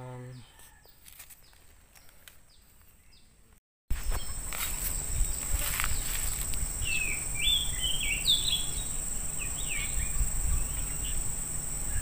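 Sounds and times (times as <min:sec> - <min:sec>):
bird chirping notes: 0:04.0 - 0:12.0
high-pitched insect drone: 0:04.0 - 0:12.0.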